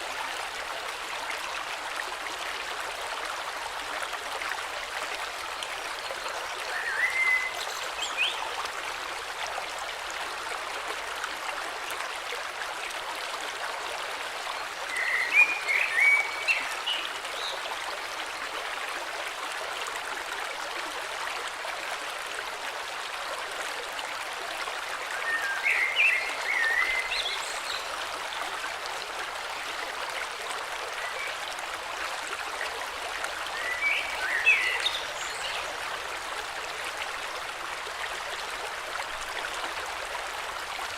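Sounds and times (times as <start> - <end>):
bird singing warbling phrases: 6.7 - 8.4.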